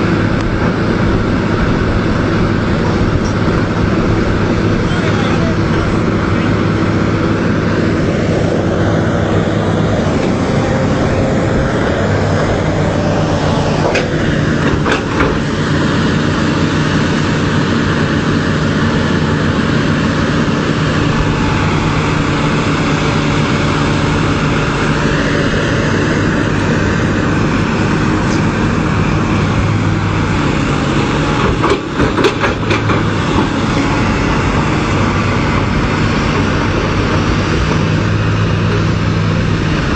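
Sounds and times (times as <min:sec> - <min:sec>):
large vehicle engine running: 0:00.0 - 0:39.9
sharp knocks or clicks: 0:31.4 - 0:33.5.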